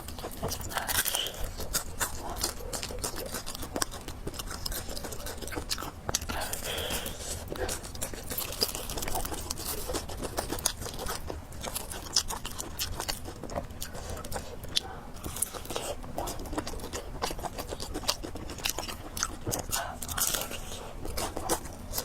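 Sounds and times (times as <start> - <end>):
chewing and biting noodles: 0.0 - 22.0.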